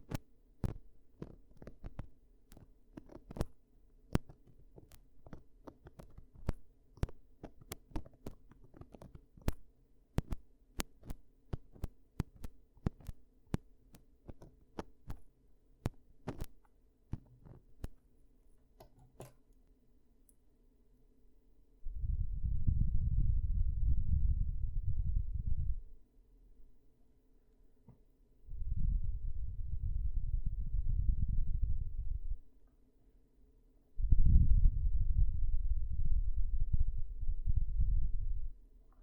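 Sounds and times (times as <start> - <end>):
ear cleaning clicks and taps: 0.0 - 18.0, 18.8 - 19.4.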